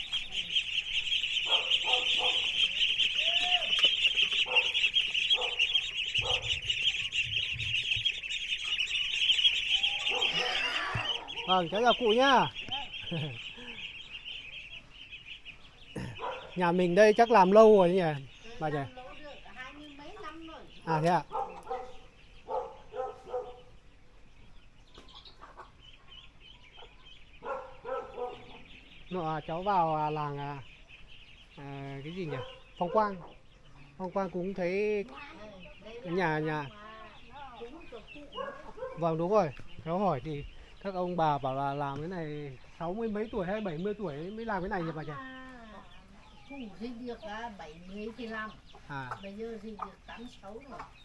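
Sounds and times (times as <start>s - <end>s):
faint high chirps: 0.0s - 16.6s
chickens clucking: 0.0s - 51.0s
ducks quacking: 0.0s - 51.0s.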